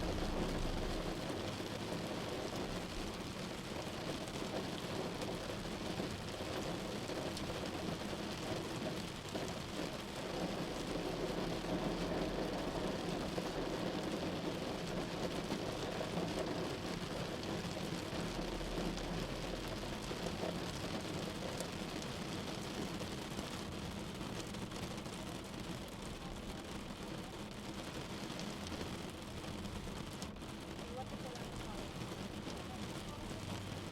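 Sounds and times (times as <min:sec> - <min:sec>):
road and engine noise: 0:00.0 - 0:24.7, 0:25.4 - 0:33.9
rain on car roof: 0:00.0 - 0:33.9.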